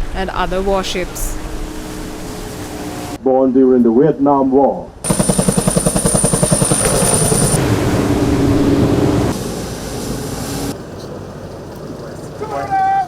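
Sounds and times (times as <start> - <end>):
helicopter engine whine: 5.0 - 10.7
helicopter rotor beating: 5.0 - 12.4.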